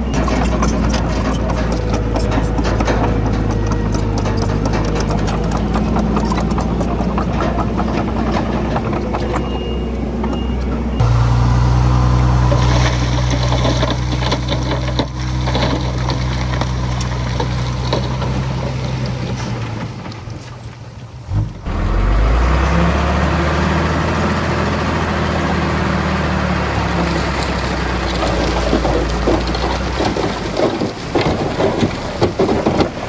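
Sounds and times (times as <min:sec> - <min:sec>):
rough crunching noise: 0:00.0 - 0:09.5, 0:11.0 - 0:20.4
diesel engine running under load: 0:00.0 - 0:33.0
deep engine note: 0:10.9 - 0:17.4, 0:21.3 - 0:28.1.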